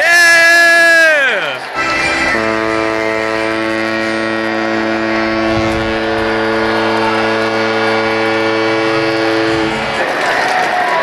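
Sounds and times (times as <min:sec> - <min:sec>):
loud low horn blast: 0:01.7 - 0:10.4.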